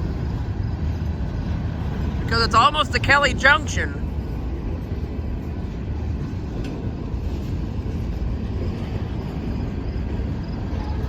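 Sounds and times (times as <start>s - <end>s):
freight train rumbling past: 0.0s - 11.0s.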